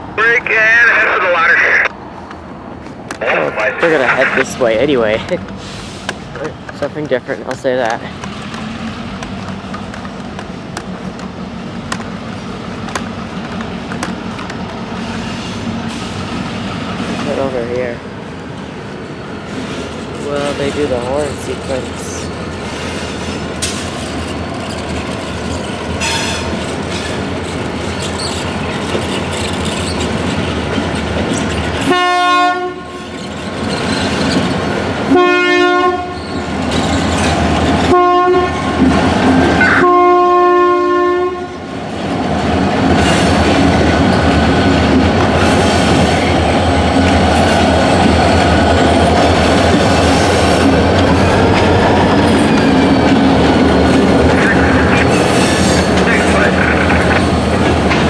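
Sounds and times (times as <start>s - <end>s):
diesel locomotive engines running: 0.0s - 58.0s
train wheels clattering on rails: 4.6s - 17.6s, 19.4s - 31.9s, 36.2s - 37.9s, 42.4s - 58.0s
train air horn blasts: 31.8s - 33.0s, 35.1s - 36.2s, 37.9s - 38.7s, 39.6s - 41.6s.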